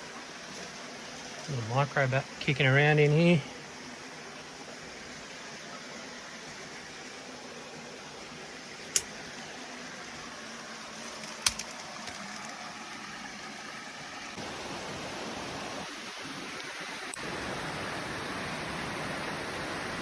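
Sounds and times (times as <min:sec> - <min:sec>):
water rushing over rocks: 0:06.6 - 0:20.0.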